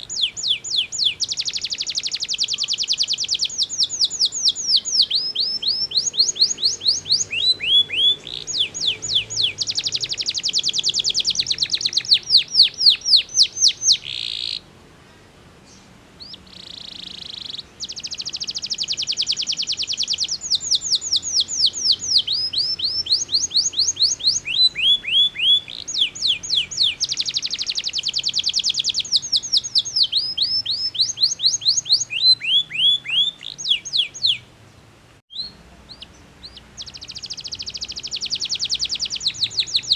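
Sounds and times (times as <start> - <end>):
canary singing: 0.0 - 14.7, 15.6 - 34.5, 35.3 - 39.9.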